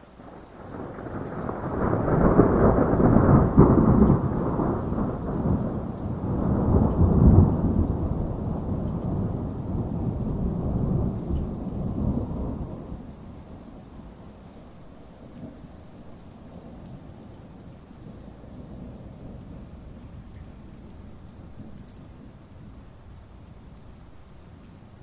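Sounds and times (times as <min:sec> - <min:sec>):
steady rain: 0:00.0 - 0:25.0
thunder rolling: 0:00.6 - 0:13.1.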